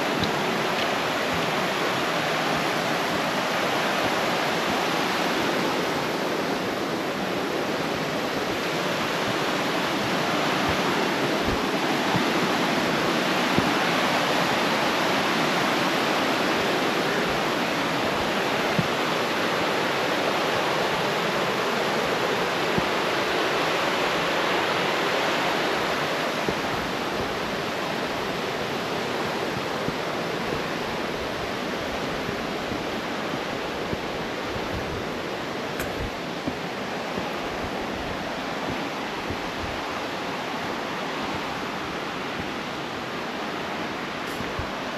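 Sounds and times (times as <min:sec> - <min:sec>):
water rushing over small waterfall: 0:00.0 - 0:44.9.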